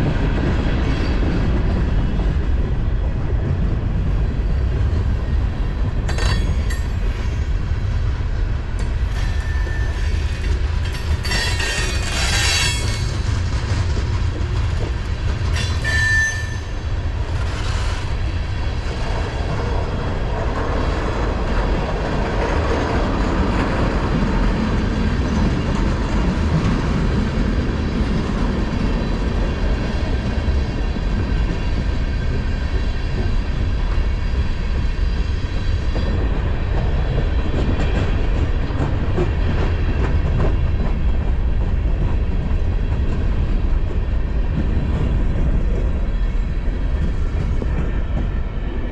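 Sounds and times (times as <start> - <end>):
freight train rumbling past: 0.0 - 48.9
wheels clattering on rail: 0.1 - 48.9
high-pitched wheel squeals: 11.2 - 13.2, 15.6 - 16.8.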